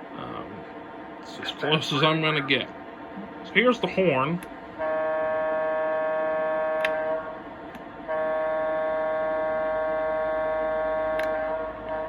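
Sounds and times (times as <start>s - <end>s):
model train horn blasts: 4.8s - 7.4s, 8.1s - 12.0s.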